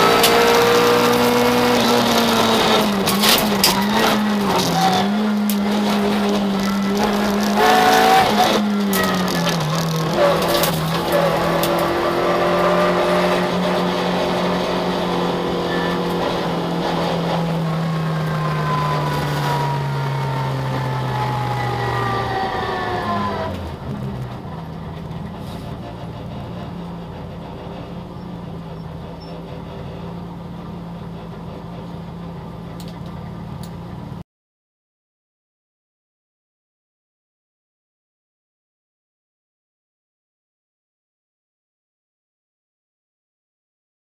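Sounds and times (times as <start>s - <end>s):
car engine running: 0.0s - 34.2s.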